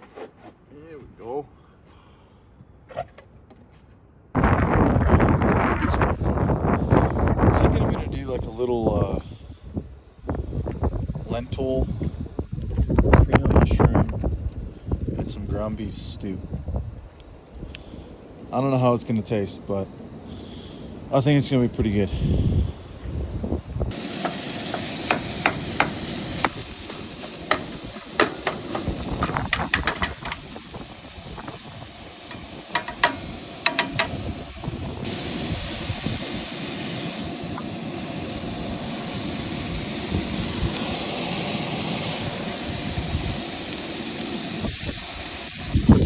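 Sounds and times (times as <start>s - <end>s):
food sizzling: 23.2s - 46.0s
metal utensil clinking on pan: 32.8s - 34.2s.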